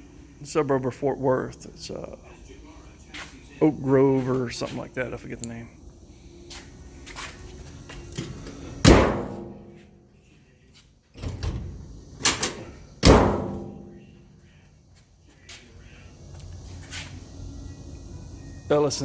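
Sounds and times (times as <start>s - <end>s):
metal truck door slamming: 8.8s - 9.8s, 11.2s - 14.0s.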